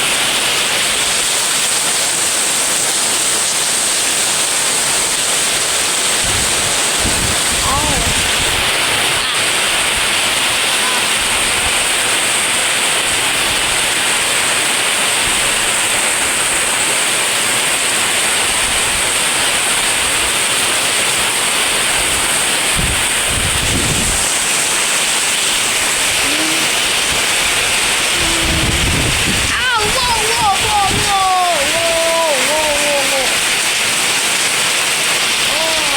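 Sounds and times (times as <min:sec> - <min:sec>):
wind and heavy rain hiss: 0:00.0 - 0:35.9.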